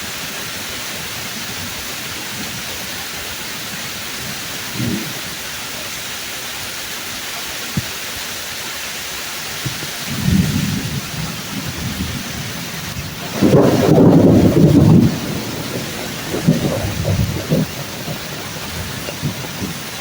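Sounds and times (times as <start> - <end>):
steady rain: 0.0 - 20.0
rumble of thunder: 0.6 - 5.6, 9.7 - 20.0.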